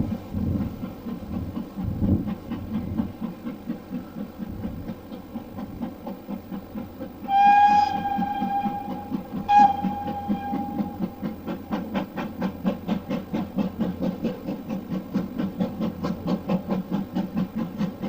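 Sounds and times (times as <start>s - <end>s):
rhythmic beat of moving train: 0.0s - 18.0s
train whistle blasts: 7.3s - 11.3s.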